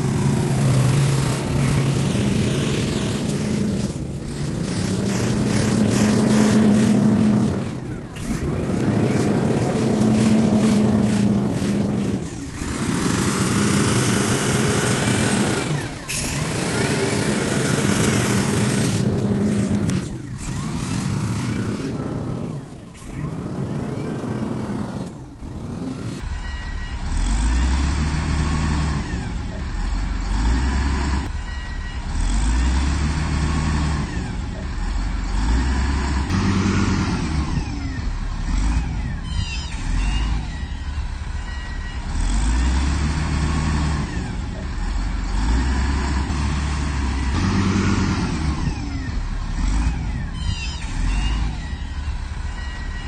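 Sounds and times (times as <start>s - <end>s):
diesel engine revving: 0.0s - 53.0s.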